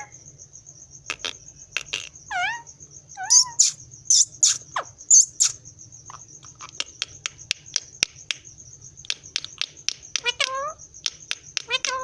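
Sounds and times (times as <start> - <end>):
parrot chirps: 1.1 - 7.0
parrot whistle: 3.2 - 5.6.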